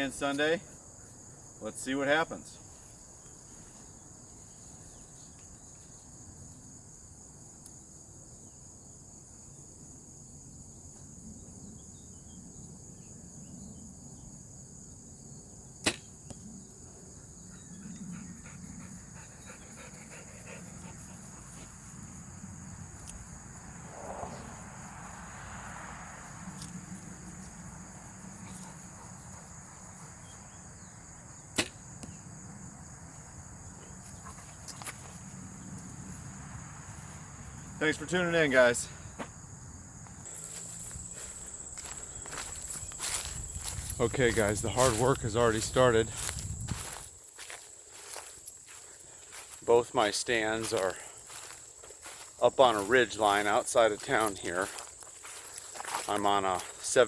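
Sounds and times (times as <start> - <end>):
crickets buzzing: 0.0 - 57.0
bow shot snap: 15.8 - 16.2, 31.6 - 31.8.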